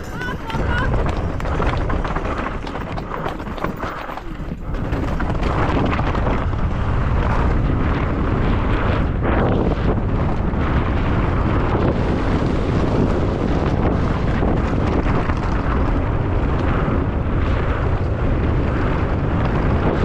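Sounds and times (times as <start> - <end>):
bike clattering over rough ground: 0.0 - 8.1
wind buffeting the microphone: 0.0 - 20.0.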